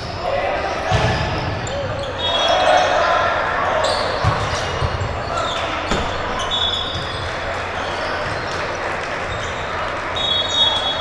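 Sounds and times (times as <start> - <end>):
crowd noise in a hall: 0.0 - 11.0
basketball bouncing on court: 4.2 - 8.6.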